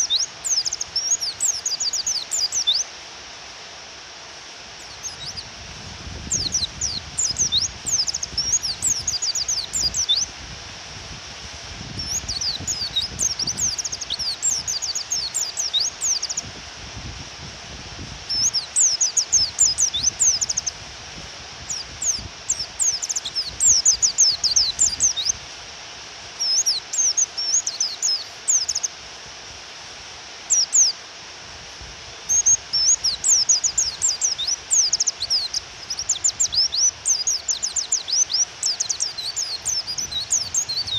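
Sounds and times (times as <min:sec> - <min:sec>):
bird rapid high chirps: 0:00.0 - 0:02.8, 0:04.8 - 0:05.5, 0:06.2 - 0:10.3, 0:12.0 - 0:16.5, 0:18.3 - 0:20.7, 0:21.7 - 0:25.4, 0:26.4 - 0:28.9, 0:32.3 - 0:40.9
rain hiss: 0:00.0 - 0:40.9.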